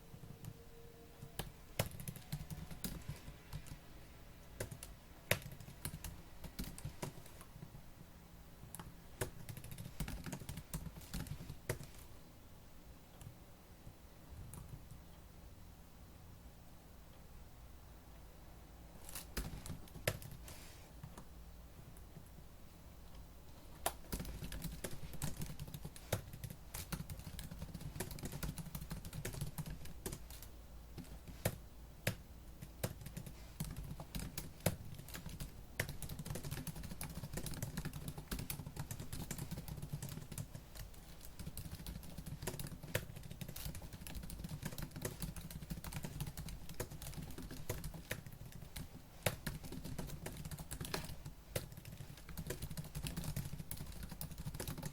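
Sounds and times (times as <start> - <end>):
fast typing on laptop keyboard: 1.4 - 3.8, 4.6 - 7.8, 8.7 - 12.1, 19.0 - 20.5, 23.8 - 54.9.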